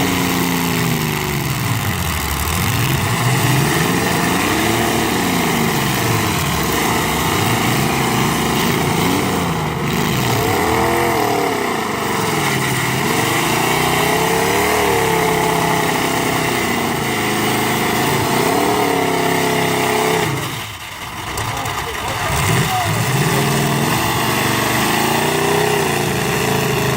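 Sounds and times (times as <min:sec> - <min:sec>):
car engines revving: 0:00.0 - 0:26.9.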